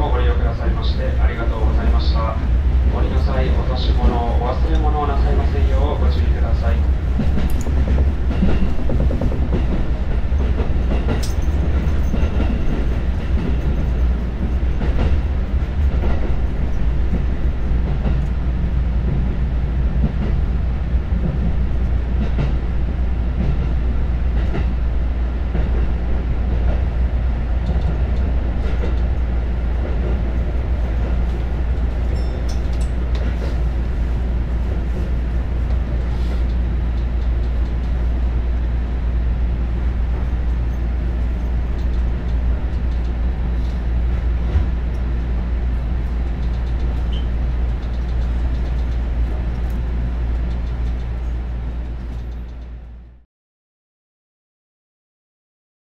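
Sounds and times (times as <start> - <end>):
train rumble: 0.0 - 53.2.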